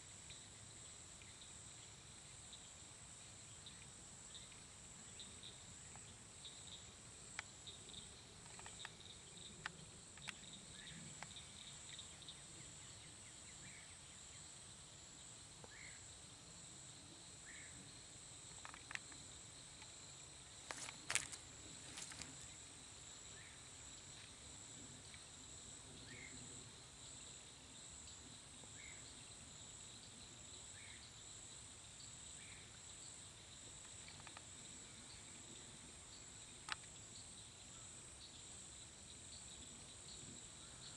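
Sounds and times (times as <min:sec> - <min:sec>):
faint chirps: 0:00.0 - 0:40.9
insect chorus trilling: 0:00.0 - 0:40.9.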